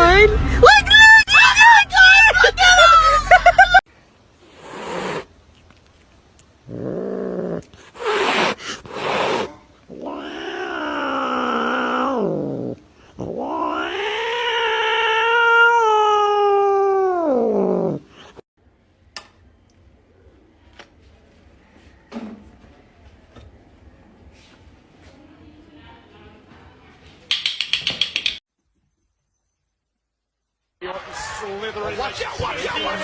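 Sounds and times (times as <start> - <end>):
cat yowling: 8.0 - 18.0.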